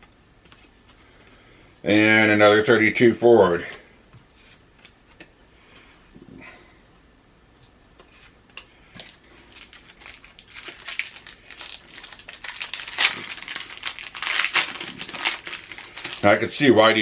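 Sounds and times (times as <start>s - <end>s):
wrapper crinkling and tearing: 9.4s - 16.6s.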